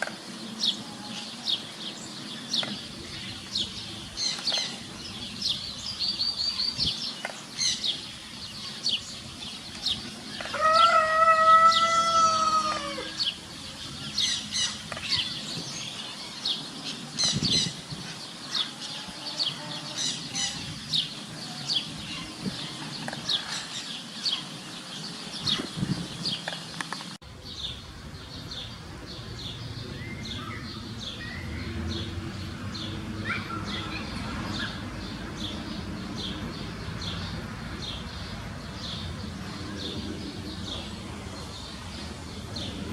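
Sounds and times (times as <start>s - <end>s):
small birds chirping: 0.0s - 42.9s
long crowing call: 10.5s - 13.3s.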